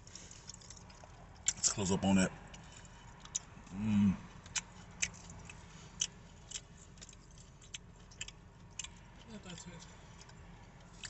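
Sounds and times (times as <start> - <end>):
crunchy fried food crackling: 0.0 - 1.8, 2.4 - 11.0.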